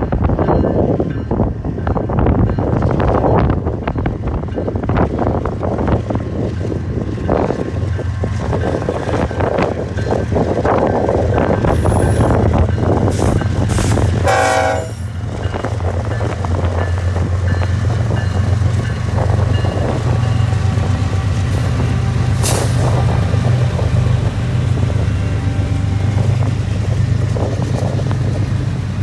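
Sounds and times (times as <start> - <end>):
diesel locomotives rumbling: 0.0 - 29.0
locomotive horn blast: 14.2 - 15.0.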